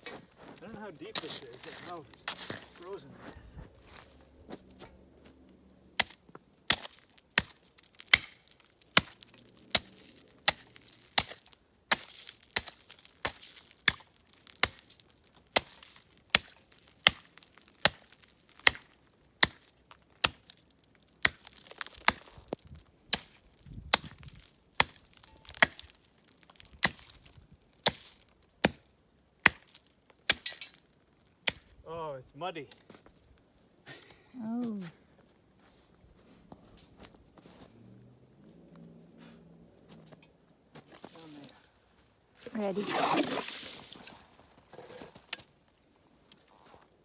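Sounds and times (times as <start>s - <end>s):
hand tool chopping ice: 1.0s - 3.0s, 6.0s - 20.6s, 21.2s - 22.3s, 24.8s - 26.0s, 26.8s - 27.2s, 27.8s - 30.8s, 31.5s - 31.7s, 42.5s - 45.5s.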